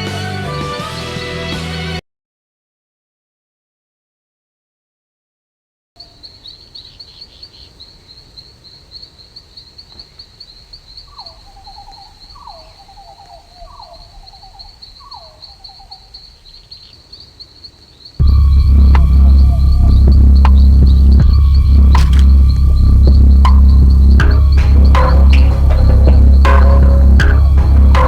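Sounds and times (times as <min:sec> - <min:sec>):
crickets trilling: 0:06.0 - 0:24.7.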